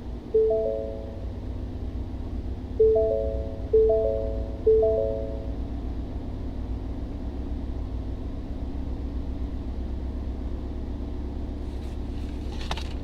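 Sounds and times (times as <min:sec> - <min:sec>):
car engine idling: 0:00.0 - 0:13.0
piano notes: 0:00.4 - 0:01.4, 0:02.8 - 0:05.6.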